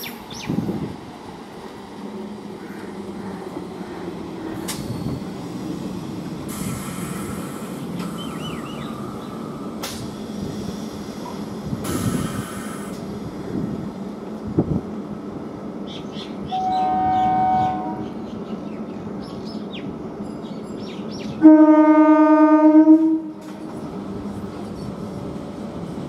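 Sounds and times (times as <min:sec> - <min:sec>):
train wheels rumbling: 0:00.0 - 0:26.0.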